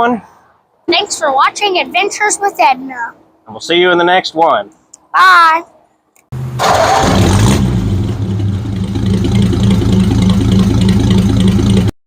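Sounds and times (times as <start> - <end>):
truck engine idling: 6.4 - 11.9.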